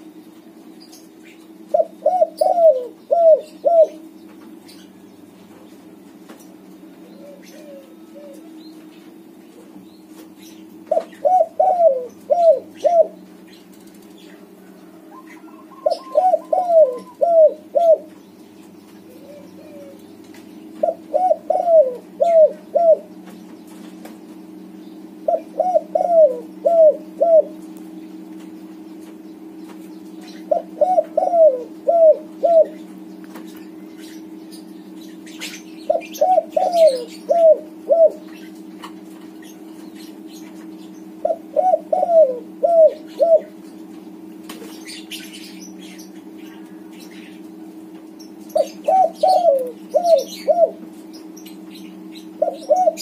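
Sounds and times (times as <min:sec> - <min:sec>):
steady low hum: 0:00.0 - 0:53.0
dove cooing: 0:01.4 - 0:04.2, 0:07.0 - 0:08.7, 0:10.7 - 0:18.2, 0:19.0 - 0:23.2, 0:25.1 - 0:27.7, 0:30.2 - 0:33.0, 0:35.0 - 0:38.6, 0:39.5 - 0:43.6, 0:48.5 - 0:53.0.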